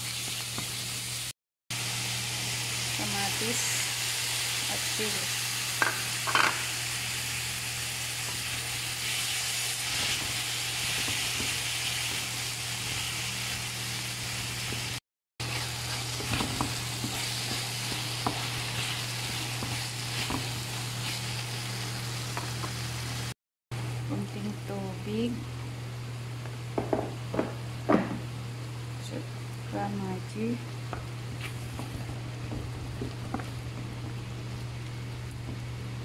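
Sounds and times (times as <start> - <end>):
food sizzling in a wok: 0.0 - 23.4
wooden spatula scraping: 15.4 - 21.5.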